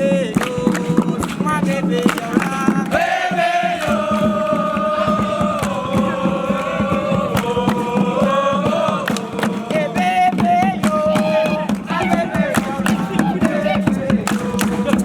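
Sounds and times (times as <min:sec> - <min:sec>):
rhythmic percussive beats: 0:00.0 - 0:15.0
voices chanting: 0:00.0 - 0:15.0.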